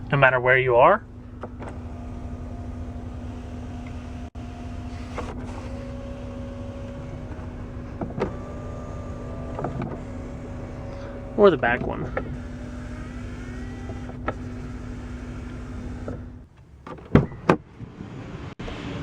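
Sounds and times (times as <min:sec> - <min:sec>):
electric sunshade motor humming: 0:01.4 - 0:16.4.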